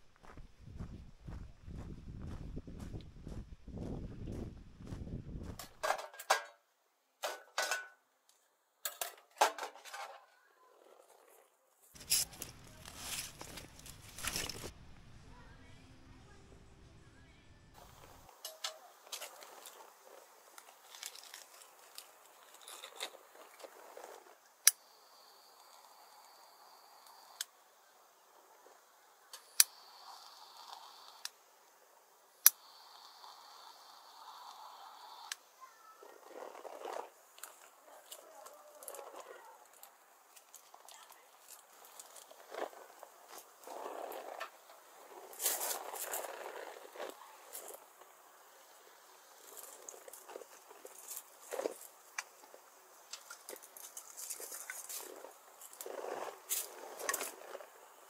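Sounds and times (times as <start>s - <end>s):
camp cookware clinking: 5.8s - 6.6s, 7.2s - 8.0s, 12.0s - 14.7s
low rumbling noise: 12.0s - 18.2s
faint high-pitched hum: 12.0s - 18.9s.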